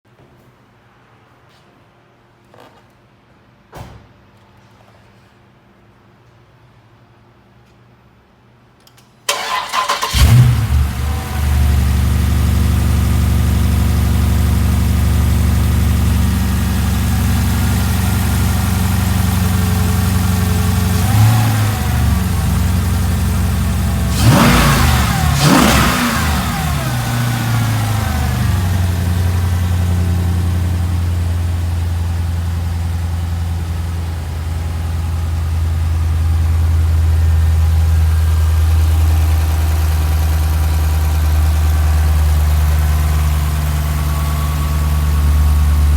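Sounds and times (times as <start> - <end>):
car engine revving: 9.3 - 45.9
car engine starting and idling: 9.3 - 45.9.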